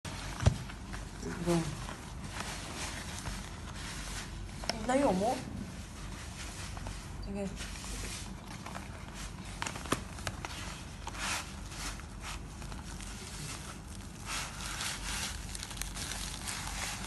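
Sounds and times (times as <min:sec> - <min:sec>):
wrapper crinkling and rustling: 0:08.2 - 0:17.0.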